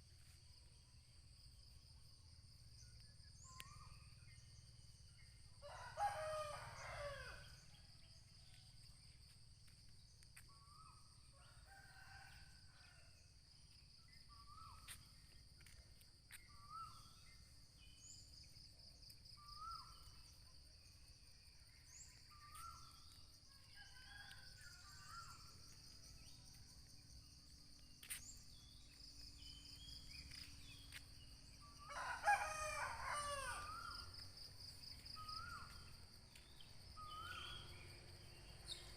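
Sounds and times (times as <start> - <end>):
roosters crowing: 31.8 - 33.9.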